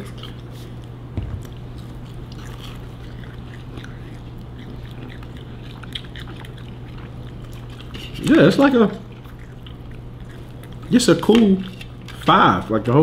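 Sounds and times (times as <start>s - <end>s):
people chewing biscuits: 0.0s - 13.0s
steady low hum: 0.0s - 13.0s.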